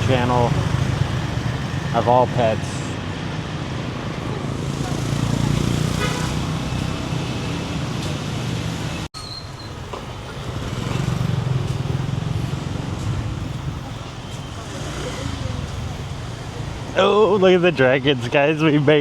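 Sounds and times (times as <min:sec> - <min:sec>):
vehicles passing: 0:00.0 - 0:19.0
car horn toot: 0:06.0 - 0:06.5.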